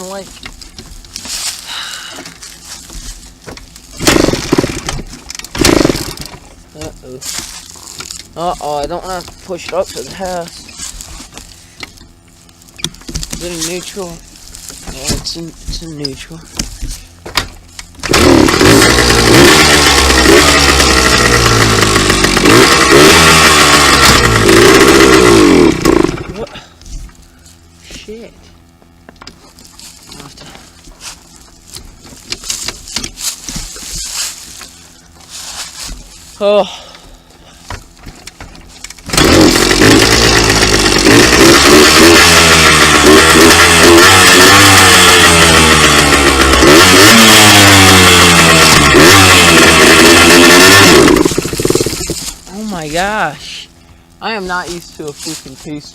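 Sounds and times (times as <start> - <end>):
dirt bike engine revving: 1.1 - 26.7, 38.8 - 55.6.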